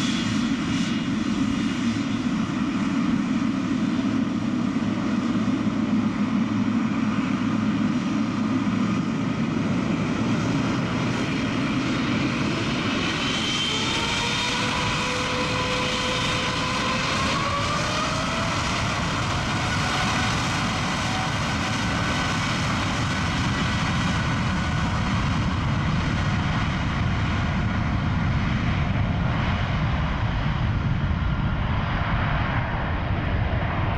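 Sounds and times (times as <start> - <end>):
jet engine whines rising: 0.0 - 33.9
jet engines rushing: 0.0 - 33.9.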